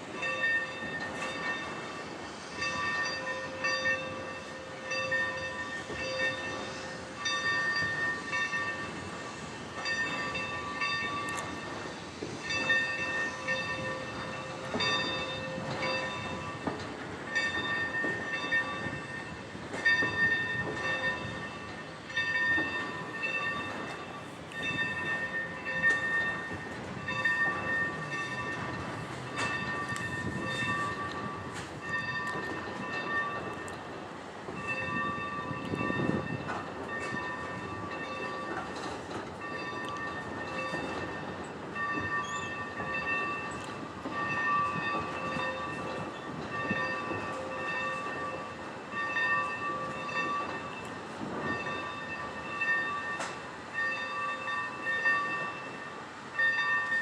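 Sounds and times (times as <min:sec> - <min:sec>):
train rolling on rails: 0:00.0 - 0:57.0
ringing tone: 0:41.8 - 0:43.6.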